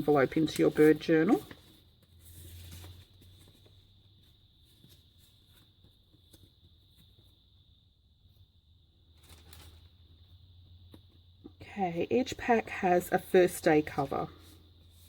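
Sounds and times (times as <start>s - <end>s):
paper being handled: 0.0s - 7.0s
faint electrical hum: 0.0s - 15.0s.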